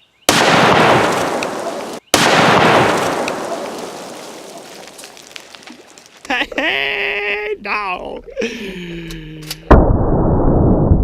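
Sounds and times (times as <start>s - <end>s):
loud explosion with rumbling echo: 0.3s - 5.0s, 9.7s - 11.0s.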